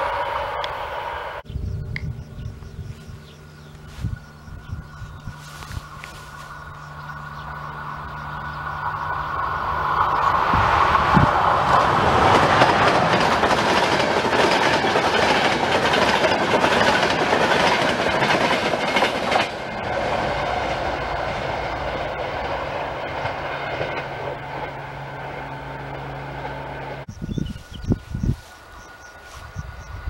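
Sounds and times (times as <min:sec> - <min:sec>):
passenger train passing: 0:00.0 - 0:30.0
wheels clacking over rail joints: 0:07.5 - 0:27.1.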